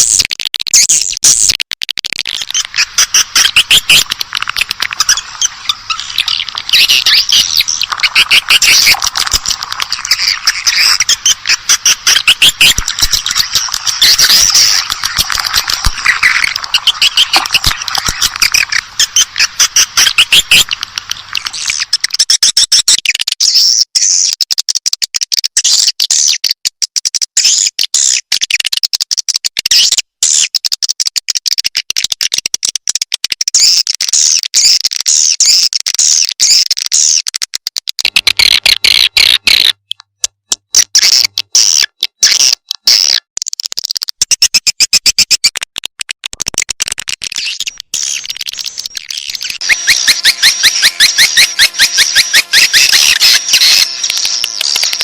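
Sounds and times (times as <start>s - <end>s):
recorded swiftlet calls: 0.0s - 24.4s, 38.0s - 43.2s, 47.2s - 55.0s.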